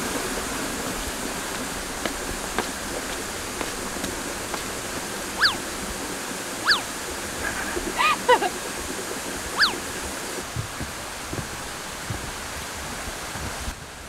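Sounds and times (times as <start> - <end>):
steady rushing noise: 0.0 - 14.0
bird calling: 5.2 - 5.8, 6.6 - 8.5, 9.5 - 10.1.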